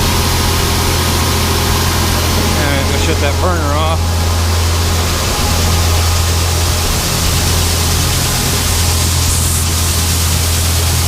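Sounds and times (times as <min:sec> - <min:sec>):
fan low hum: 0:00.0 - 0:11.0
burner rushing hiss: 0:02.2 - 0:11.0.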